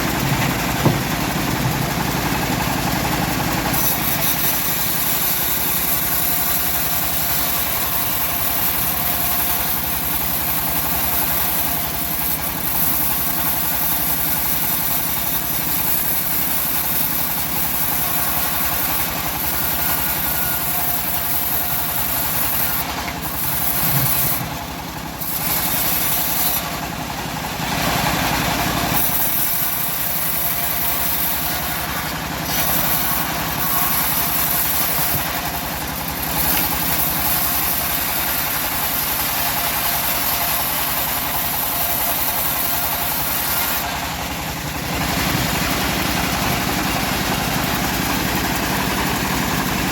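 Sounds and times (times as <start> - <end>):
bandsaw mill sawing wood: 0.0 - 49.9.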